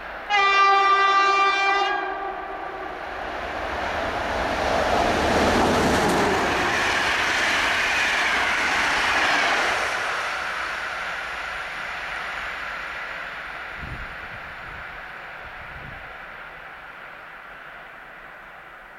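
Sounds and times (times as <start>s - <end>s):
train wheels rumbling on rail: 0.0s - 18.9s
locomotive horn blast: 0.3s - 2.8s.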